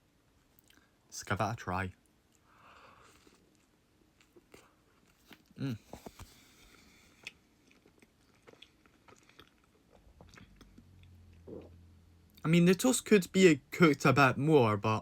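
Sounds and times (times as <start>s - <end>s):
short vocal sound: 5.6s - 6.0s
chewing crunches: 7.1s - 11.8s.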